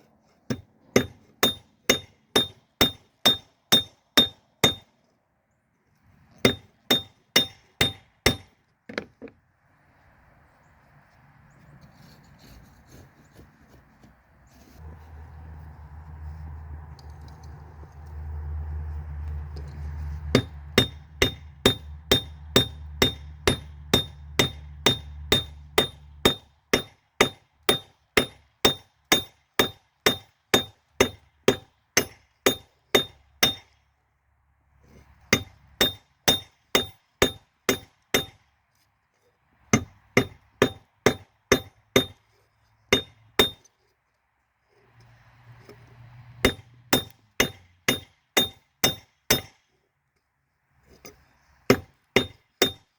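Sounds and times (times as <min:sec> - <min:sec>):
low rumble: 0:14.8 - 0:22.5.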